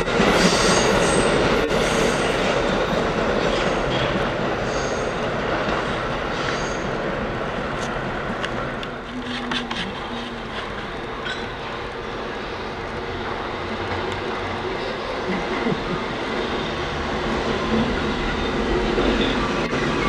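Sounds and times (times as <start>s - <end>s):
train running on rails: 0.0s - 20.0s.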